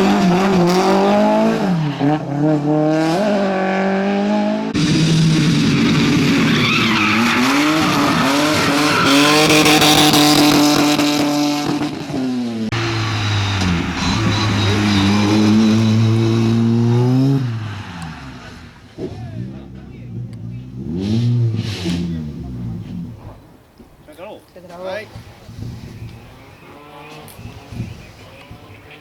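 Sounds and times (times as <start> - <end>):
race car engines revving: 0.0 - 23.8, 25.1 - 29.0
tyre noise: 12.7 - 24.1.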